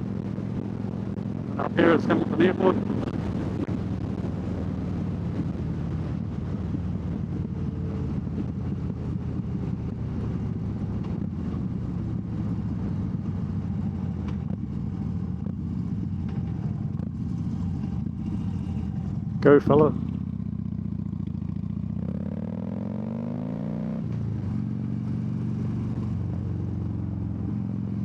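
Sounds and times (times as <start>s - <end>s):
wind rushing: 0.0s - 9.5s
motorcycle engine running: 0.0s - 28.0s.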